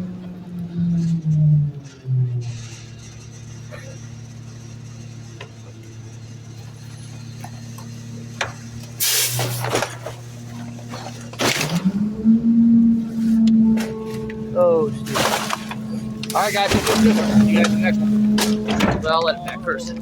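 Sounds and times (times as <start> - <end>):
garbage truck diesel engine: 0.0 - 20.0
loud hissing rushes: 9.0 - 9.7.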